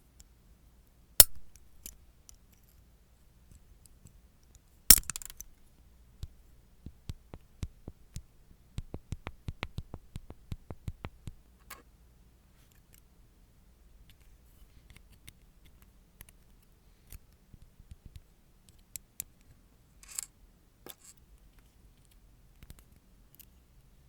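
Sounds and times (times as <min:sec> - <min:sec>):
sharp hard taps and clicks: 0:06.2 - 0:11.4.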